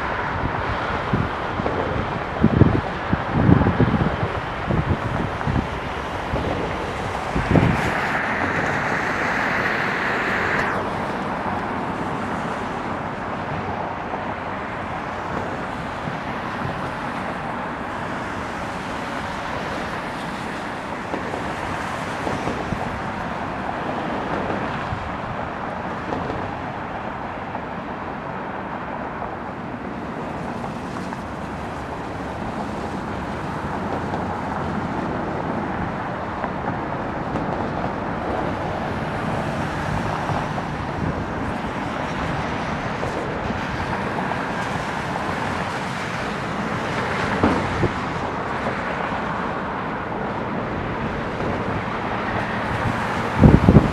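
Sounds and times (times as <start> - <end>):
jet aircraft landing: 0.0 - 53.9
bright hiss: 6.8 - 11.2.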